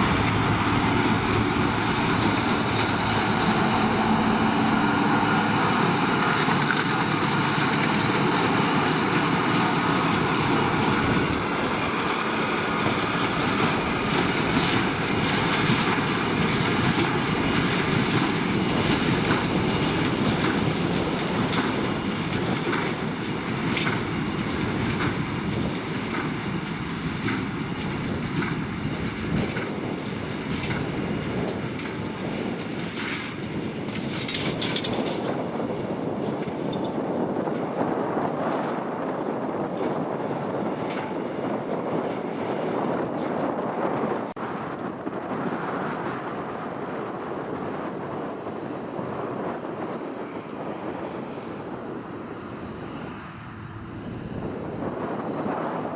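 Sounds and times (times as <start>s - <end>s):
sharp baler clack: 0.0s - 35.5s
tractor and baler machinery: 0.0s - 55.9s.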